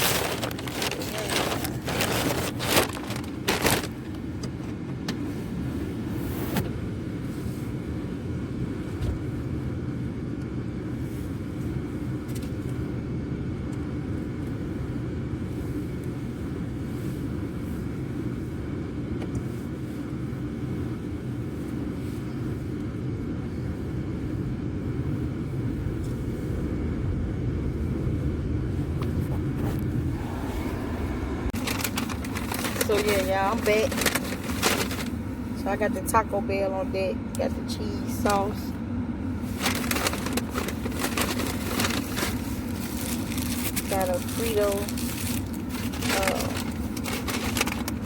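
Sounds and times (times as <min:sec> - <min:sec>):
car engine and road rumble: 0:00.0 - 0:48.0.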